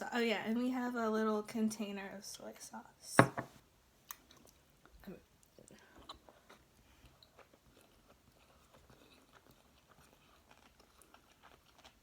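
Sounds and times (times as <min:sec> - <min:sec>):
chewing with mouth clicks: 0:04.1 - 0:12.0.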